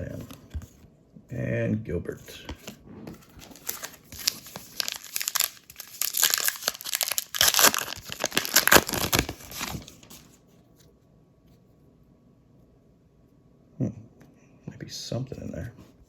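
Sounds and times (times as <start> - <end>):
card pack wrapper crinkling: 2.5 - 10.4.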